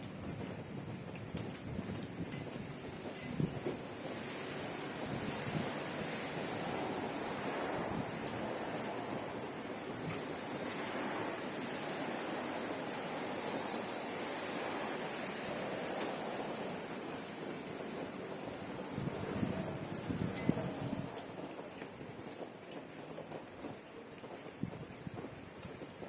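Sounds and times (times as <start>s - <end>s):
faint drip-like clicks: 0.0s - 4.1s, 20.4s - 26.0s
steady rain hiss: 0.0s - 26.0s.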